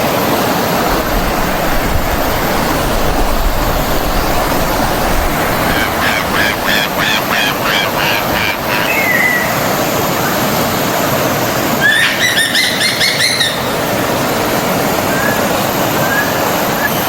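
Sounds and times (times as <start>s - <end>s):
forest stream rushing: 0.0s - 17.0s
birds chirping: 1.0s - 10.3s, 11.8s - 14.2s.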